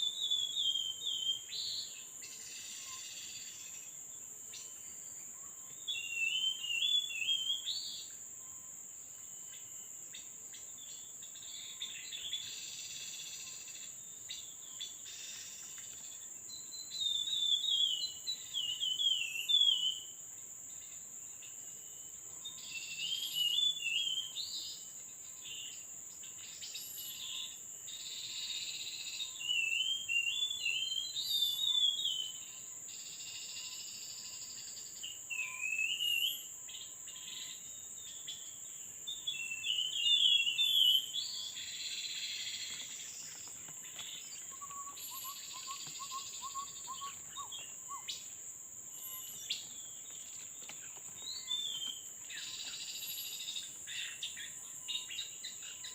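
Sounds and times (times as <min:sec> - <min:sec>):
high-pitched insect drone: 0:02.2 - 0:04.0, 0:22.4 - 0:55.9.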